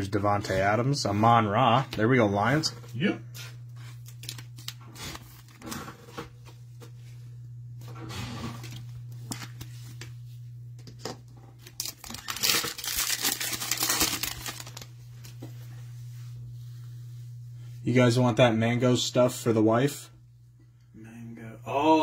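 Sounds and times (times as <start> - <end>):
low hum: 2.4 - 22.0
foil wrapper tearing and crinkling: 4.0 - 5.8, 11.6 - 15.0.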